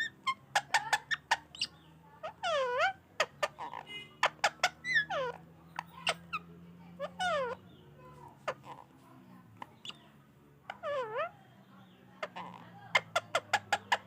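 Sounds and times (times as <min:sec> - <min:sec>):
parakeet clicks and chirps: 0:00.0 - 0:07.6, 0:12.2 - 0:14.0
parakeet squawks: 0:00.0 - 0:07.8, 0:08.4 - 0:08.9, 0:09.6 - 0:10.1, 0:10.7 - 0:14.0.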